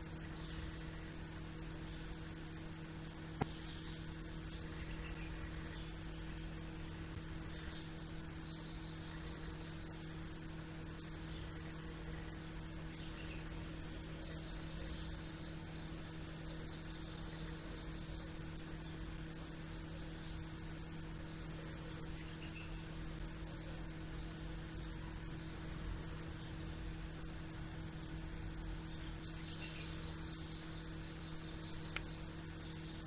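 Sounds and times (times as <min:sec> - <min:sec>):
steady hum: 0:00.0 - 0:33.0
faint bird chirps: 0:03.4 - 0:10.1, 0:10.9 - 0:19.4, 0:21.8 - 0:23.0, 0:28.8 - 0:33.0.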